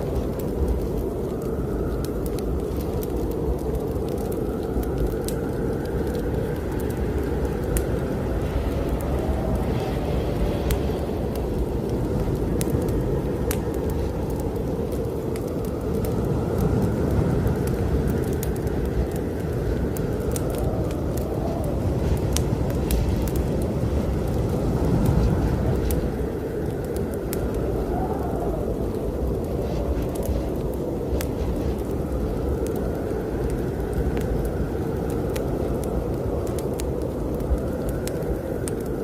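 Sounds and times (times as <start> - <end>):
blizzard wind blowing: 0.0 - 39.0
wood fire crackling: 0.0 - 39.0.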